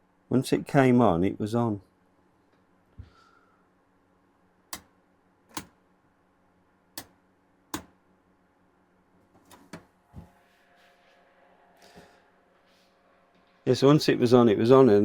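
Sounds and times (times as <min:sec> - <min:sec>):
mains switch clicking: 0:05.5 - 0:05.8, 0:07.7 - 0:08.0.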